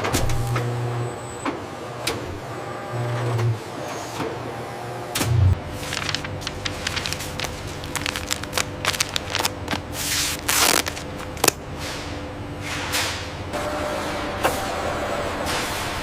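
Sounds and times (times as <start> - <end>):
machine hum: 4.8 - 12.6.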